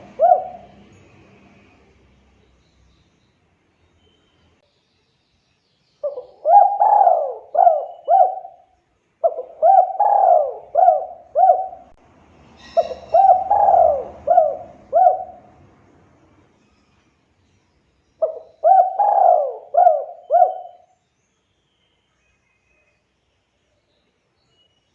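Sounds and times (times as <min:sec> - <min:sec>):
dove cooing: 0:00.0 - 0:01.0, 0:06.0 - 0:12.0, 0:12.7 - 0:15.6, 0:18.2 - 0:20.9.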